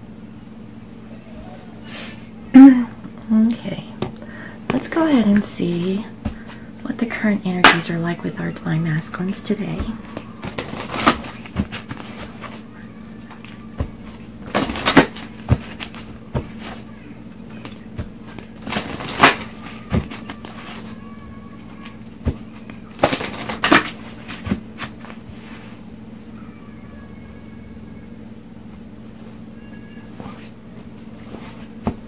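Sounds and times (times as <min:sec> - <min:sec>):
card taps: 0:04.0 - 0:06.6
cards riffling: 0:09.2 - 0:25.4
card snaps: 0:17.5 - 0:20.9.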